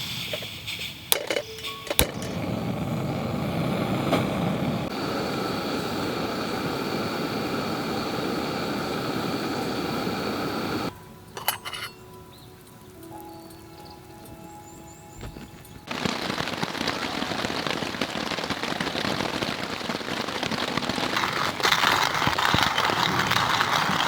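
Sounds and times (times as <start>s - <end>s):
steady rushing hiss: 0.0s - 24.0s
sharp metal clinks: 11.3s - 12.3s.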